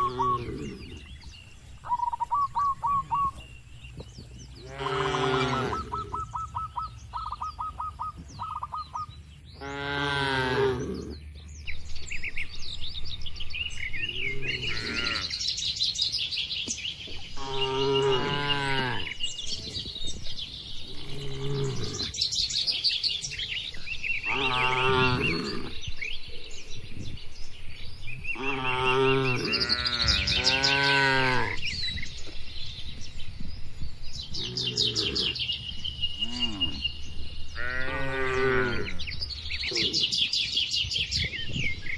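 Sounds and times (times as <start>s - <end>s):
small birds chirping: 0.0s - 41.9s
cattle mooing: 4.6s - 6.1s, 24.3s - 25.8s.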